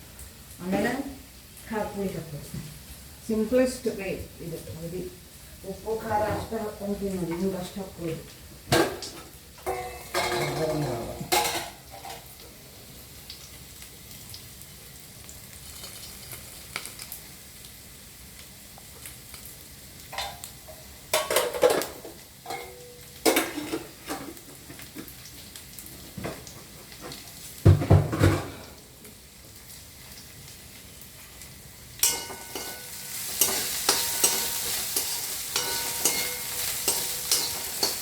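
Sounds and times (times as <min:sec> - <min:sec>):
faint sizzle of frying food: 0:00.0 - 0:38.0
spatula scraping in a frying pan: 0:32.0 - 0:38.0.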